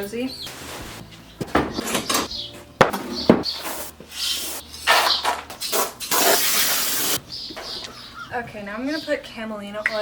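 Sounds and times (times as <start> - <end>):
rustling and scraping of objects: 0.0 - 6.5.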